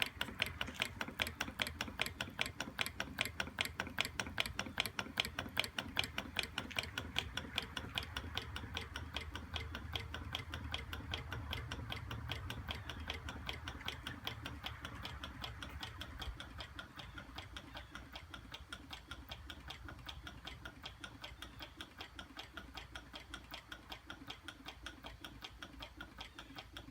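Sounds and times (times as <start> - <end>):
low engine hum: 0.0 - 18.6
engine rhythmic clicking: 0.0 - 26.9.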